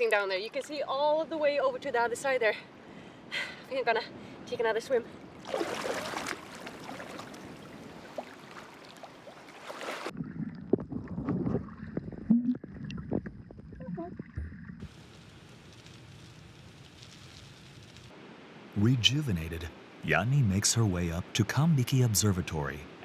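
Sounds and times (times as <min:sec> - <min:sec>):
sea water and wind hissing: 0:02.6 - 0:10.1, 0:14.8 - 0:23.0
steady hiss: 0:14.8 - 0:22.8.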